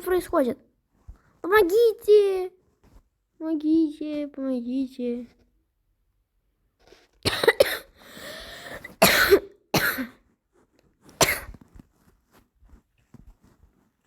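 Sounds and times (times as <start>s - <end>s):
person coughing: 7.3s - 8.0s, 8.7s - 10.2s, 11.2s - 11.6s.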